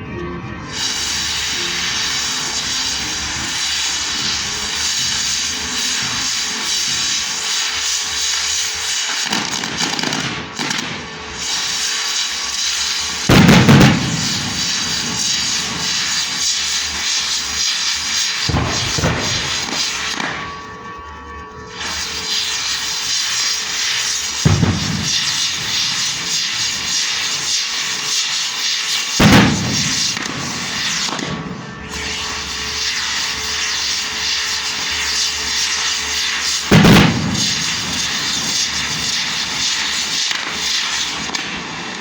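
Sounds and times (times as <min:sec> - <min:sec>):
fireworks crackling: 0:00.6 - 0:42.0
deep firework booms: 0:13.3 - 0:16.8, 0:18.4 - 0:20.4, 0:24.4 - 0:27.3, 0:29.2 - 0:32.5, 0:36.6 - 0:39.7.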